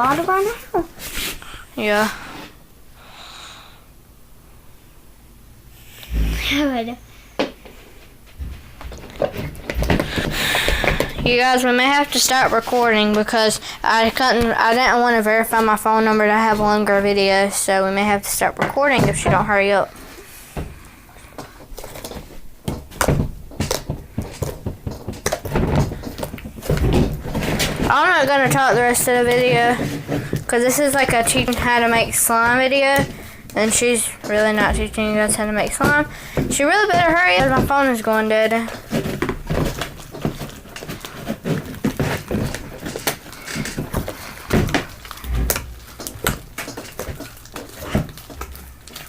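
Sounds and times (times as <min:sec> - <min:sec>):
objects knocking and clicking: 0:08.4 - 0:11.4, 0:21.4 - 0:49.0
soft thuds: 0:43.8 - 0:46.5.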